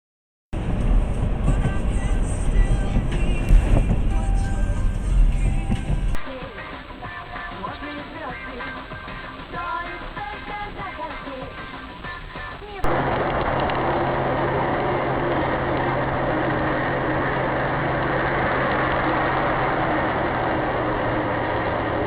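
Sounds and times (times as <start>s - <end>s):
car engine and road noise: 0.6s - 6.2s, 12.8s - 22.0s.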